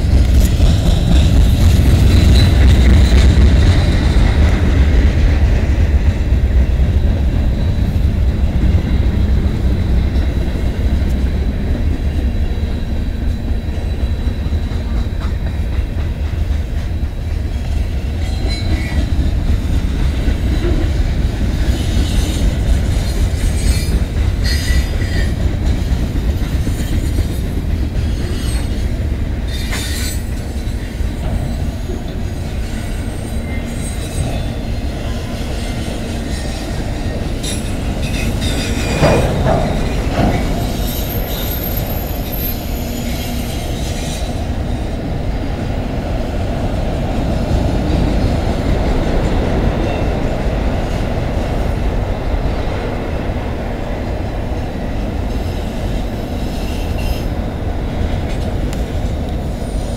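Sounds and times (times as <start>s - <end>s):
freight cars rumbling on rail: 0.0s - 59.9s
high wheel squeal: 23.0s - 25.4s, 28.0s - 44.4s.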